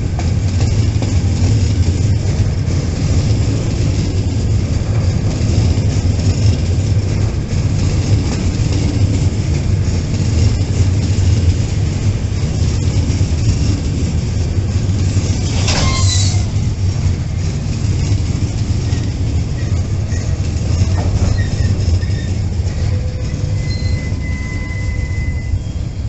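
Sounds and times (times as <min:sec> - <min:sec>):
freight wagon wheels rumbling: 0:00.0 - 0:26.0
high squeal: 0:15.5 - 0:16.6, 0:18.9 - 0:26.0.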